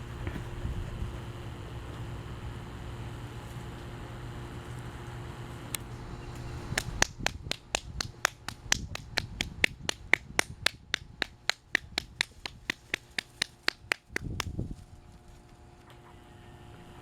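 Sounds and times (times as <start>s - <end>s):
rapid sharp clicks: 6.8s - 14.5s.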